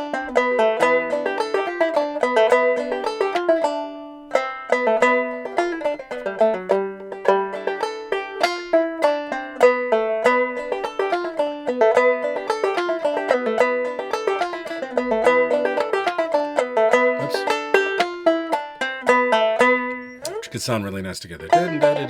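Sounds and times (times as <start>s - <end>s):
banjo melody: 0.0s - 22.0s.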